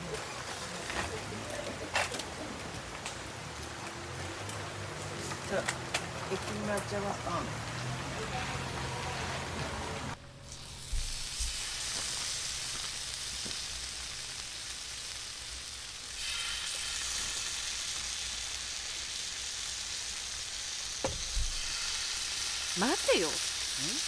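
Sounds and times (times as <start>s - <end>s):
food sizzling: 0.0s - 24.0s.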